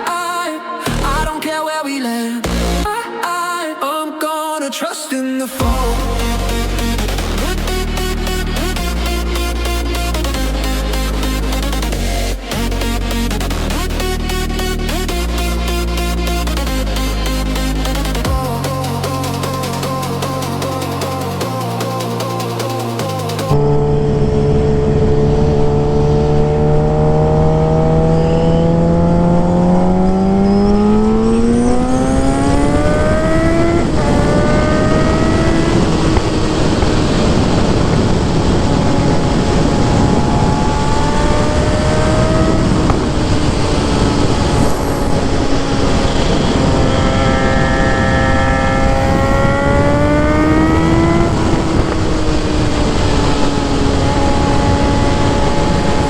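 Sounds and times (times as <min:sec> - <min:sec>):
motorcycle engine accelerating: 0:05.6 - 0:56.0
wind noise: 0:23.5 - 0:56.0.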